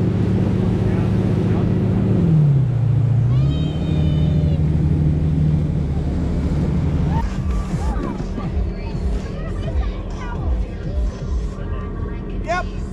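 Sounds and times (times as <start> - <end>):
motorboat engine running: 0.0 - 12.9.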